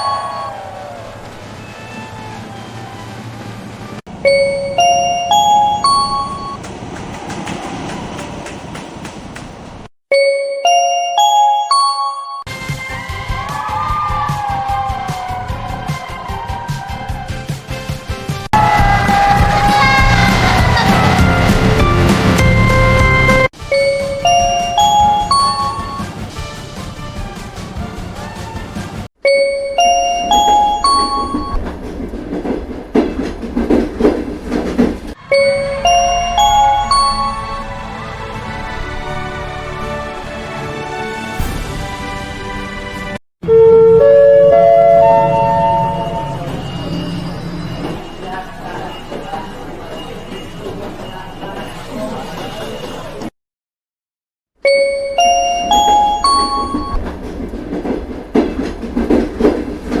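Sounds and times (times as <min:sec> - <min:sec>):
rising bell-like chime: 0:00.0 - 0:00.7, 0:04.2 - 0:06.6, 0:10.1 - 0:12.5, 0:22.0 - 0:26.2, 0:29.3 - 0:31.6, 0:35.2 - 0:38.0, 0:43.6 - 0:50.4, 0:54.7 - 0:57.0
train rumbling: 0:00.0 - 0:09.9, 0:18.4 - 0:29.1, 0:30.0 - 0:43.2, 0:44.0 - 0:53.2, 0:55.3 - 1:00.0
train wheels clattering on rails: 0:06.2 - 0:09.9, 0:30.4 - 0:35.2, 0:55.7 - 1:00.0.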